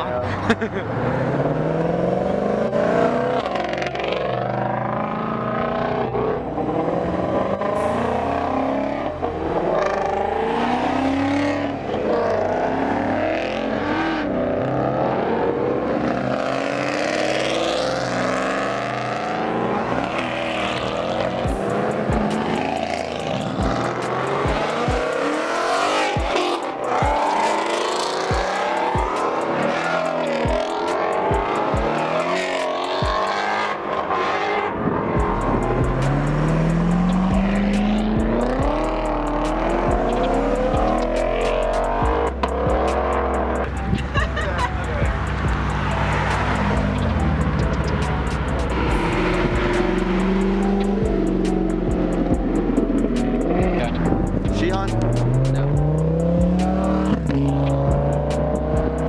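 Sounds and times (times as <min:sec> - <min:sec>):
car engines revving: 0:00.0 - 0:59.0
tires squealing: 0:00.0 - 0:59.0
music: 0:01.3 - 0:59.0
thumping beat: 0:20.2 - 0:33.6, 0:34.9 - 0:59.0.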